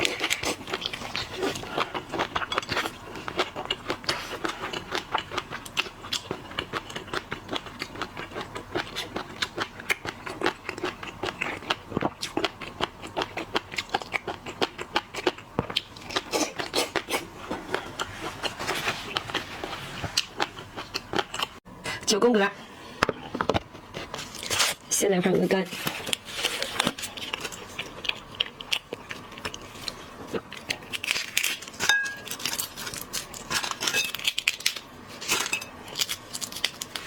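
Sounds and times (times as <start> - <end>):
wet chewing and smacking: 0.0 - 21.6, 25.8 - 34.6.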